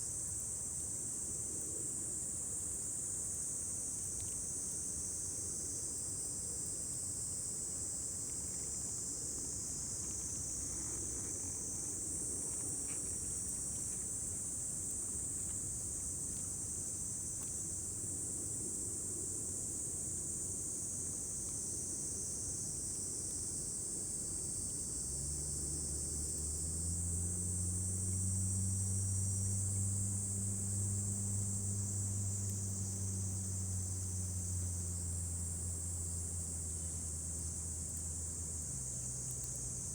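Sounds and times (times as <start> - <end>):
insects chirring: 24.4 - 39.9.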